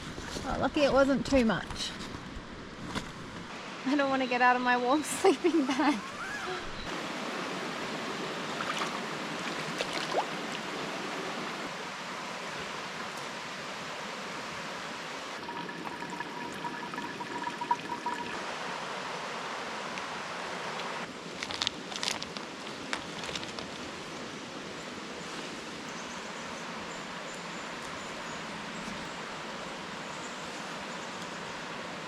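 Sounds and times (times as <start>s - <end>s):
flowing water rushing: 5.5s - 21.1s.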